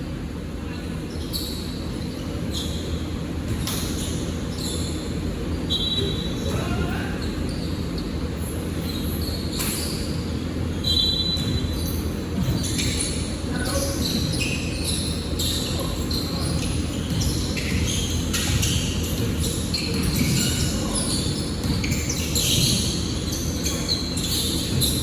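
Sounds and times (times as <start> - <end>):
shoe squeaks: 0.7 - 25.0
basketball bouncing on court: 2.5 - 5.0, 10.8 - 25.0.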